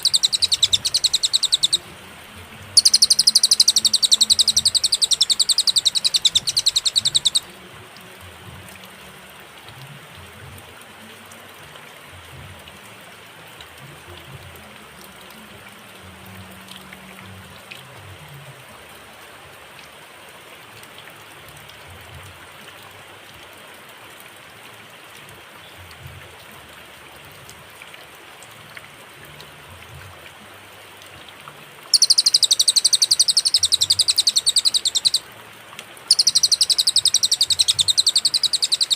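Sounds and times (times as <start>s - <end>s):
bird trilling: 0.0s - 1.9s, 2.8s - 7.5s, 31.9s - 35.2s, 36.1s - 38.9s
faint background hiss: 0.0s - 38.9s.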